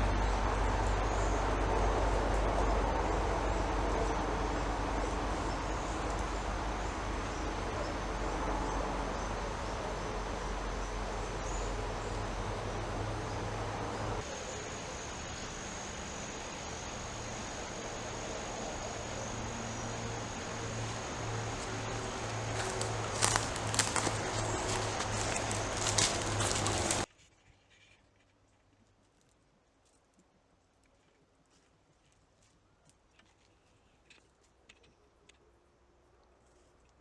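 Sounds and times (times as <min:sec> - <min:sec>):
high insect drone: 0:00.0 - 0:27.1.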